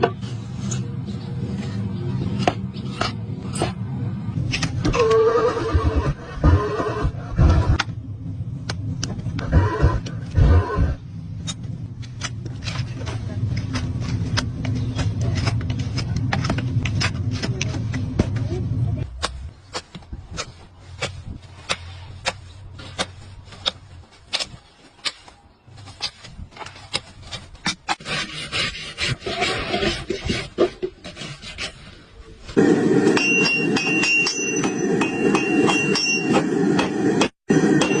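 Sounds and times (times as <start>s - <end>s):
scraping: 9.4s - 32.6s.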